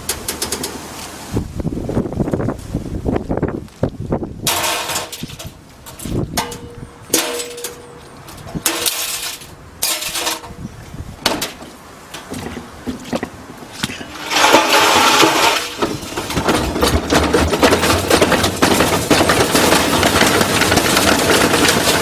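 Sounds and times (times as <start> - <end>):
washing machine crashing and breaking: 4.4 - 5.5, 14.0 - 22.0
loud clatter: 4.4 - 7.8, 11.2 - 22.0.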